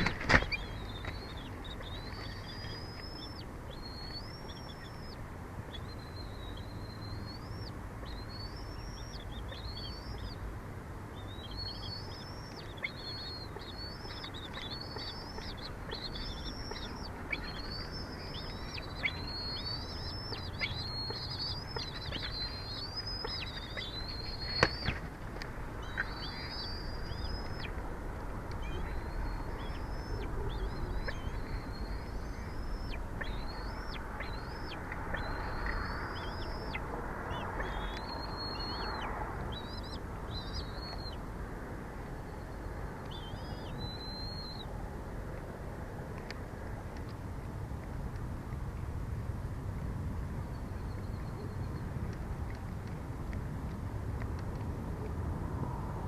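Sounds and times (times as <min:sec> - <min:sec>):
birds chirping: 0:00.0 - 0:41.3, 0:42.1 - 0:44.7.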